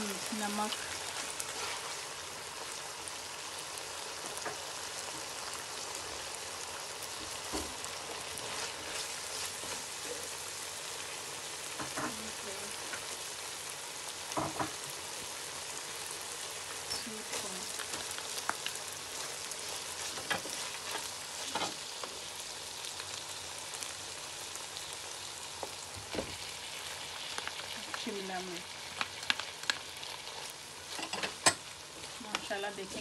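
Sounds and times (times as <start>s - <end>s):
chicken sizzling in oil: 0.0s - 33.0s
spatula stirring: 0.8s - 2.1s, 8.2s - 10.4s, 19.2s - 22.1s.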